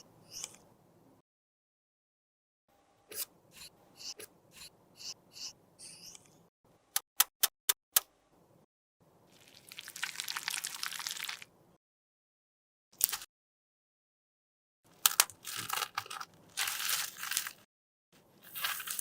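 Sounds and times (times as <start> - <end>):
crackly crunching: 14.9 - 17.7, 18.4 - 19.0.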